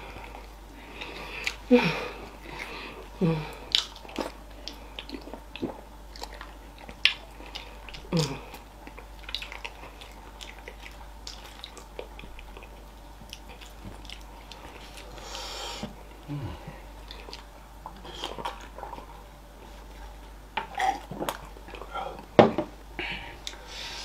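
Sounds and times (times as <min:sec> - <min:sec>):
wet chewing and lip smacks: 0:08.8 - 0:15.1.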